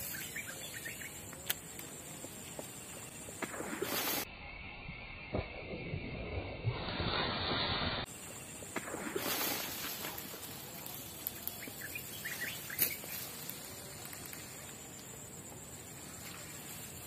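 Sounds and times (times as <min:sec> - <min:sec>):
bird chirps: 0:00.0 - 0:01.3, 0:11.3 - 0:13.3
soft hiss: 0:07.1 - 0:17.0.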